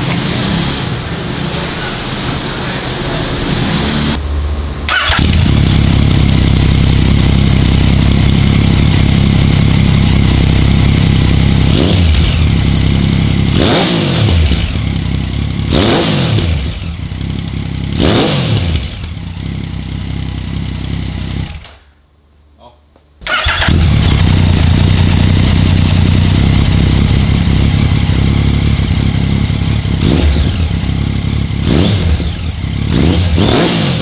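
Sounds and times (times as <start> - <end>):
motorcycle engine idling and revving: 0.0 - 21.7, 23.2 - 34.0.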